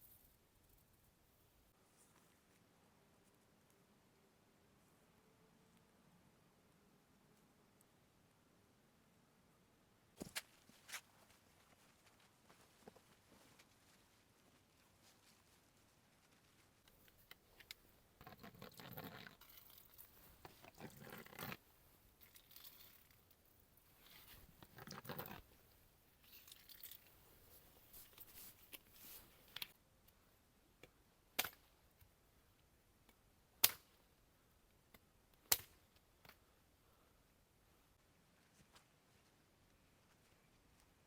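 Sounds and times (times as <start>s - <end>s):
rustling handling noises: 10.2s - 18.7s, 22.5s - 29.7s.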